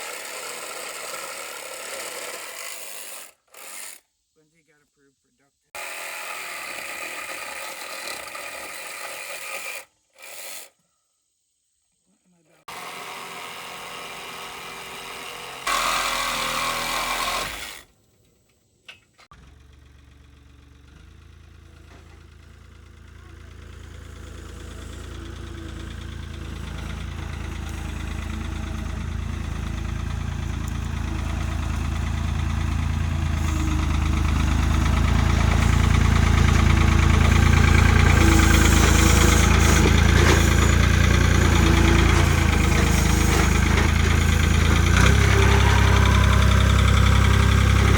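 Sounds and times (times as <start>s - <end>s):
vehicle engine running: 19.3s - 47.9s.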